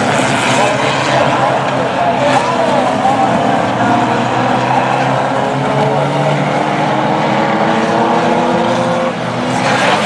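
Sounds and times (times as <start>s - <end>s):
racing car engines revving: 0.0s - 10.0s.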